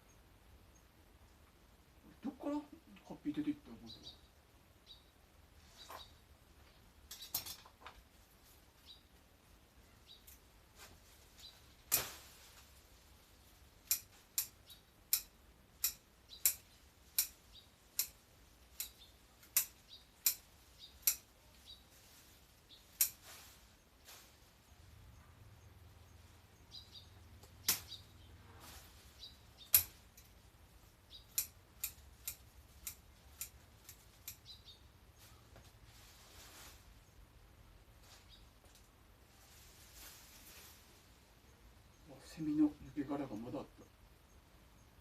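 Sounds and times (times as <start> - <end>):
pruning shears snipping branches: 11.8 - 12.8, 13.7 - 21.4, 22.8 - 24.3, 27.3 - 28.1, 29.5 - 30.4, 31.1 - 34.6.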